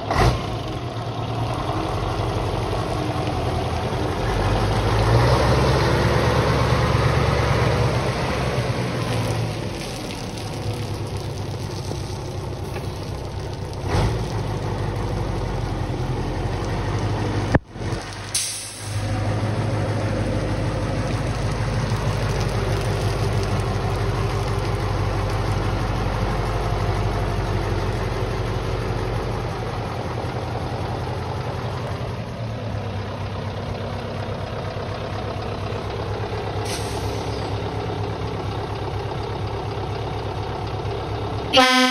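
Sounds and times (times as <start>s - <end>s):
diesel truck engine idling: 0.0s - 41.9s
air brake hisses: 18.4s - 19.1s, 36.7s - 37.5s.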